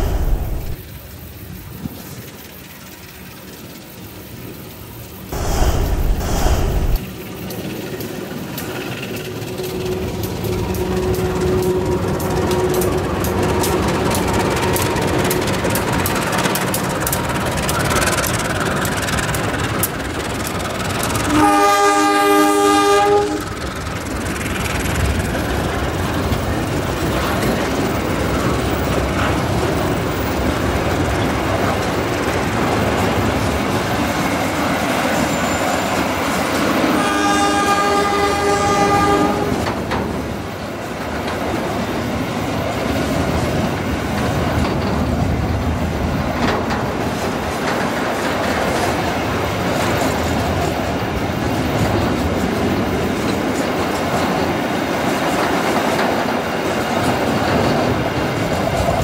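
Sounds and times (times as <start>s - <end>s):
freight train wheels rumbling: 0.0s - 59.0s
locomotive horn blast: 21.2s - 23.5s, 36.8s - 39.6s.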